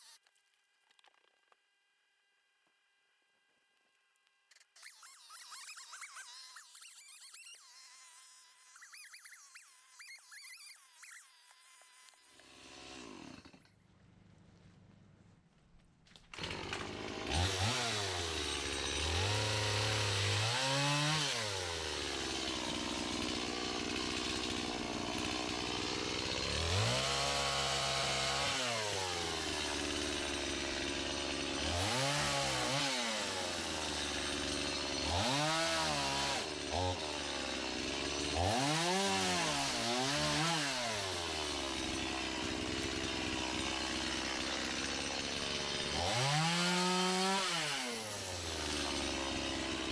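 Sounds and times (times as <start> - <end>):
chainsaw cutting wood: 0.0 - 0.2, 4.5 - 13.8, 16.1 - 49.9.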